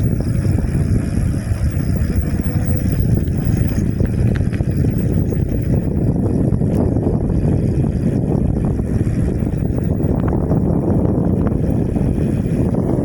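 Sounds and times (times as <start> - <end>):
road rumble: 0.0 - 13.0
wind buffeting microphone: 0.0 - 13.0.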